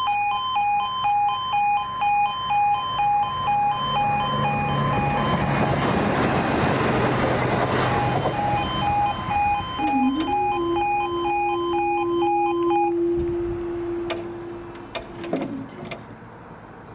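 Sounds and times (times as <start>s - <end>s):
two-tone crossing alarm: 0.0s - 15.5s
train passing: 3.9s - 10.9s.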